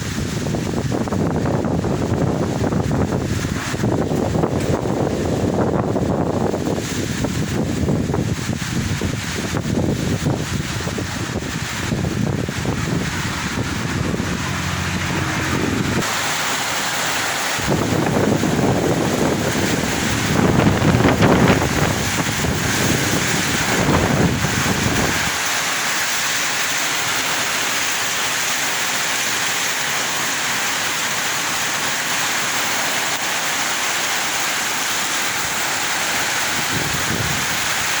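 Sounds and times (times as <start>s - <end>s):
strong wind buffeting microphone: 0.0s - 26.4s, 35.2s - 38.0s.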